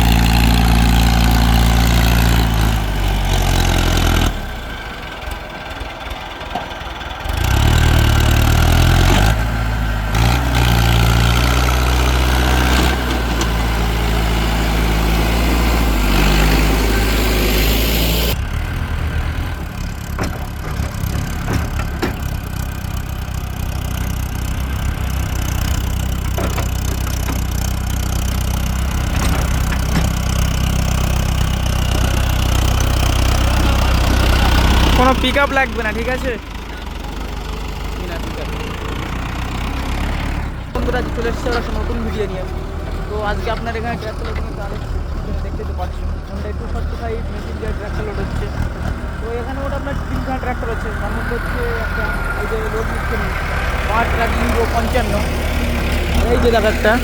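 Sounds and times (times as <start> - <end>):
heavy diesel engines running: 0.0 - 57.0.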